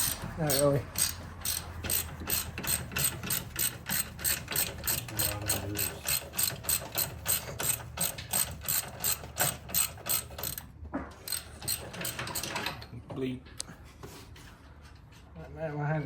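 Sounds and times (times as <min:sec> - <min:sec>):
ratchet wrench clicking: 0:00.0 - 0:10.6, 0:11.3 - 0:12.7.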